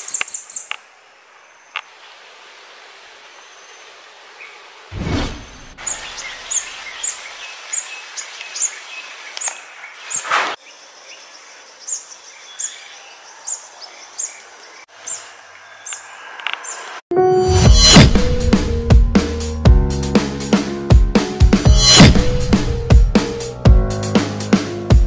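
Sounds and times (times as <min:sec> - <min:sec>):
outdoor hiss: 0:00.3 - 0:05.0
rushes of noise: 0:04.9 - 0:06.2
small bird chirping: 0:05.8 - 0:17.0.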